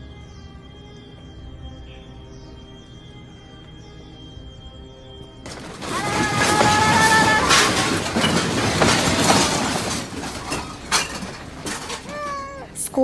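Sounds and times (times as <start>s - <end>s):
background music: 0.0s - 6.1s, 10.7s - 13.0s
objects clattering and crashing: 5.5s - 13.0s
high held cry: 5.8s - 8.1s.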